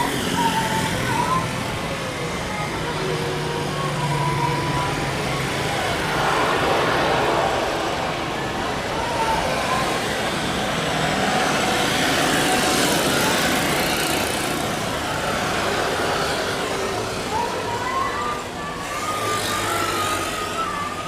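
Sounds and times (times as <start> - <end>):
jet engines roaring: 0.0 - 17.7
wavering whine: 3.6 - 11.4.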